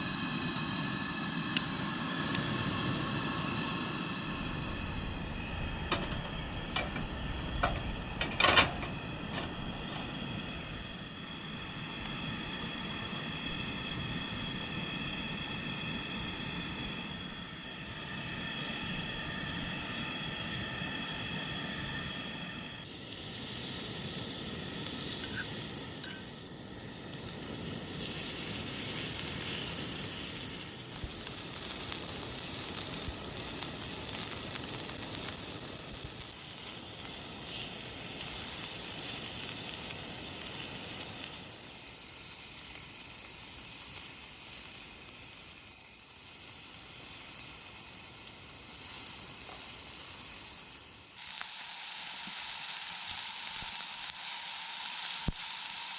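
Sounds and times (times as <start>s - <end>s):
food sizzling in a pan: 22.8s - 55.9s.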